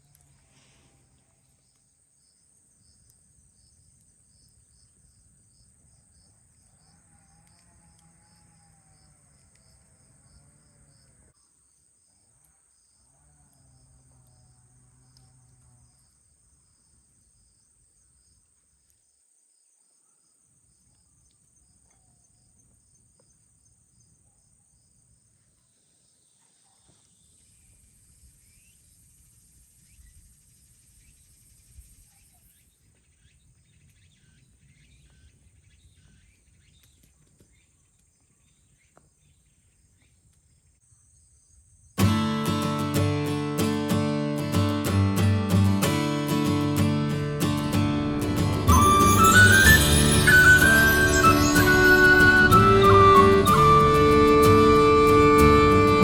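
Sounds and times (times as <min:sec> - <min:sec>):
crickets chirping: 0:00.9 - 0:26.4, 0:27.1 - 0:32.6
high drone: 0:42.0 - 0:56.0.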